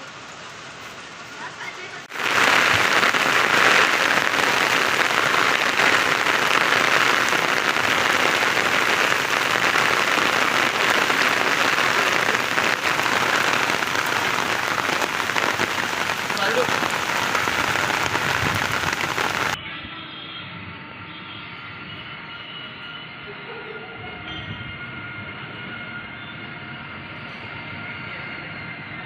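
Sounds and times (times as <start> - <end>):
rain falling: 0.0 - 19.6.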